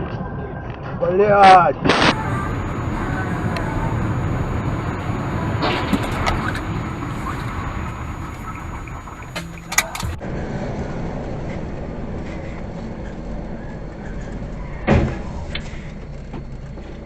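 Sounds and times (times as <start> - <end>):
car engine rumble: 1.9 - 17.0
road noise: 1.9 - 17.0
sharp clicks: 5.7 - 10.2.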